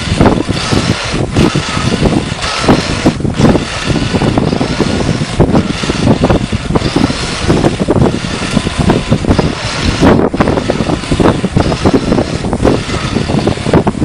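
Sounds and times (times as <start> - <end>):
gusty wind buffeting microphone: 0.0 - 14.0.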